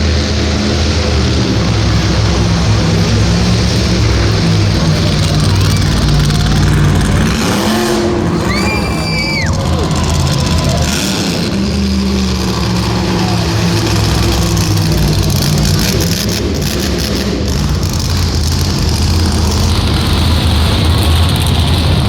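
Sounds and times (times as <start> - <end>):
high rising and falling tone: 0.0 - 16.6
truck engine running loudly: 0.0 - 22.0.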